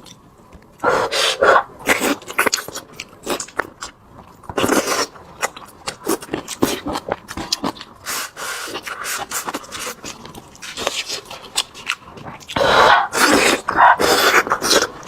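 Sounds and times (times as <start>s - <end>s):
chewing and lip-smacking: 1.8s - 15.0s.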